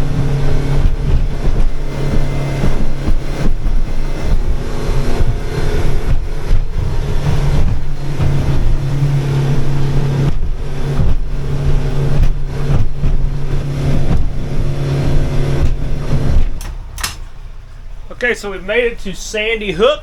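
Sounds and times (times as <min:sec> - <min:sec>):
boat engine running: 0:00.0 - 0:20.0
wind and water noise: 0:00.0 - 0:20.0
sudden knocks: 0:09.6 - 0:17.3.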